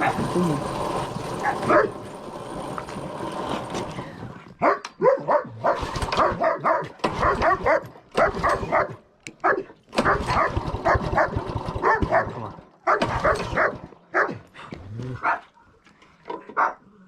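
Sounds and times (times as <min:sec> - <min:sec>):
dog barking and yipping: 0:01.3 - 0:02.0, 0:04.6 - 0:14.5, 0:16.6 - 0:16.8
background noise: 0:12.4 - 0:17.0.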